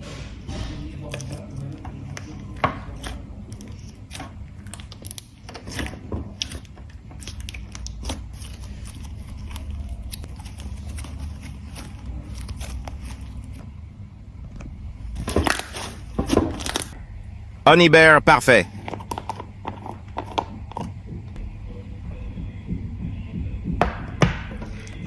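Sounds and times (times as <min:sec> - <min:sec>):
low rumble: 0:20.9 - 0:24.2.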